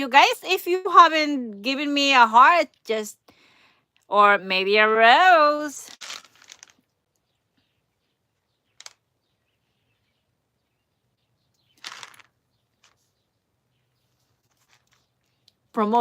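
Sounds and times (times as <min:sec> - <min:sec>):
packaging rustle: 0:06.0 - 0:06.8, 0:11.8 - 0:13.0.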